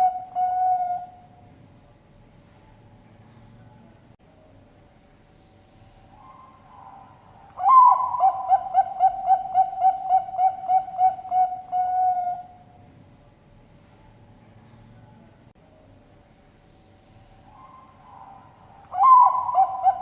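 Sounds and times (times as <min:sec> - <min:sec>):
dove cooing: 0:00.0 - 0:01.4, 0:06.1 - 0:12.7, 0:17.5 - 0:20.0.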